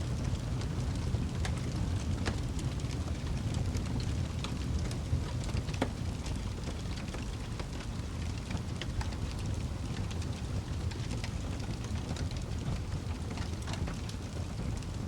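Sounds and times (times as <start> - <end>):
fire crackling in a fireplace: 0.0 - 15.0.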